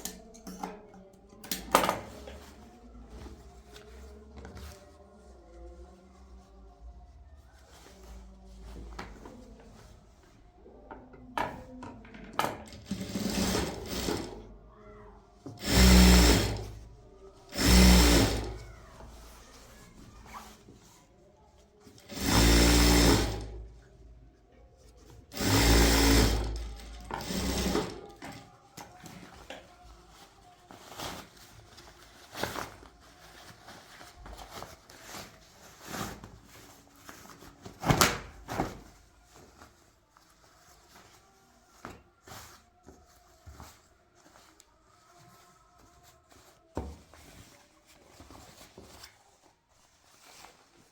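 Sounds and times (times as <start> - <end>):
sewing machine running: 12.8 - 14.3, 15.6 - 16.8, 17.5 - 18.6, 22.1 - 23.5, 25.3 - 28.0.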